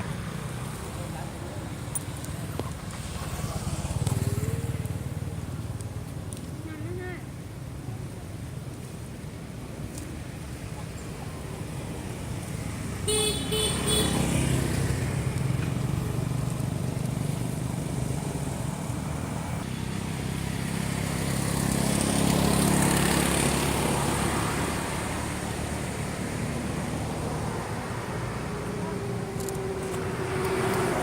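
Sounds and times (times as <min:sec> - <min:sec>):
vehicle passing: 0:00.0 - 0:05.8, 0:11.4 - 0:31.0
vehicle horn toots: 0:13.1 - 0:14.2.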